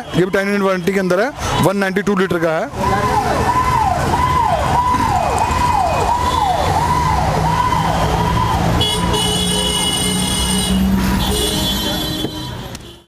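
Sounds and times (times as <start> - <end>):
electronic siren wailing: 2.2 - 9.1.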